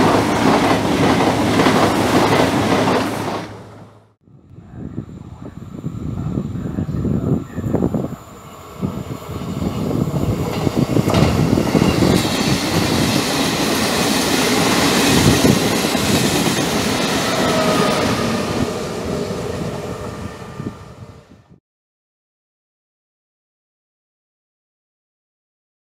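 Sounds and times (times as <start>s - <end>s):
train wheels clattering: 10.4s - 18.0s.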